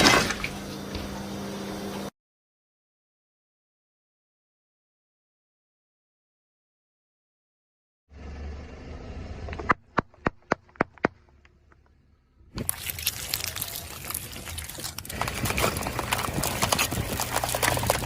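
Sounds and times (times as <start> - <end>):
objects crunching under car tyre: 9.6 - 18.0.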